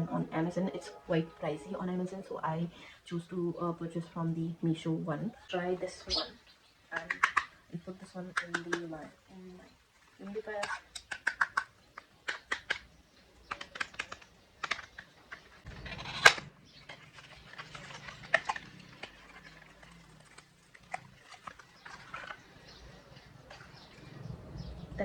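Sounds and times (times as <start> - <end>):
small plastic items clicking: 6.9 - 24.2.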